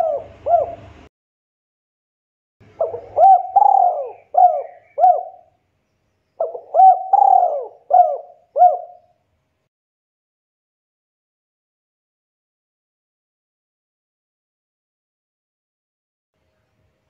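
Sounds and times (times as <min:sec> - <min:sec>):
dove cooing: 0:00.0 - 0:01.0, 0:02.7 - 0:05.5, 0:06.4 - 0:09.1.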